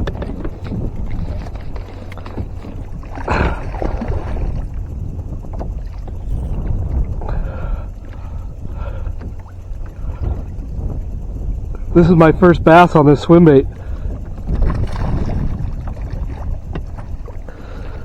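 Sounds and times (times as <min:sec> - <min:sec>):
low rumble of wind and water: 0:00.0 - 0:18.0
water splash: 0:01.1 - 0:04.7, 0:14.5 - 0:17.1.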